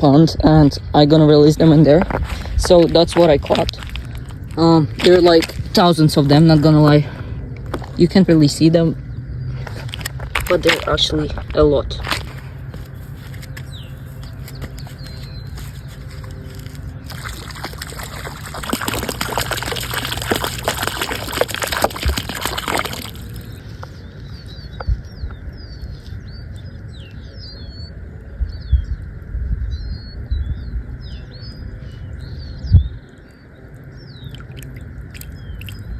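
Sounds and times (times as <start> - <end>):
birds chirping: 0.0 - 35.9
water pouring and splashing: 2.2 - 6.7, 16.6 - 23.6, 34.2 - 35.9.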